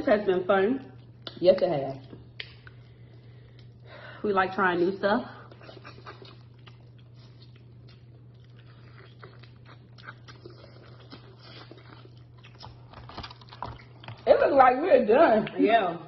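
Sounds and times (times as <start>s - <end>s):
steady low hum: 0.0s - 16.0s
chewing and lip smacking: 0.8s - 3.9s, 5.4s - 14.2s.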